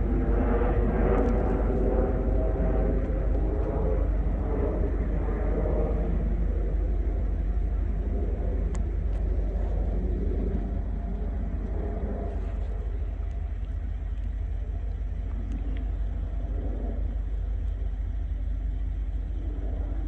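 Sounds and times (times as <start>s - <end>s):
distant diesel train rumbling: 0.0s - 20.0s
faint click: 8.6s - 9.2s.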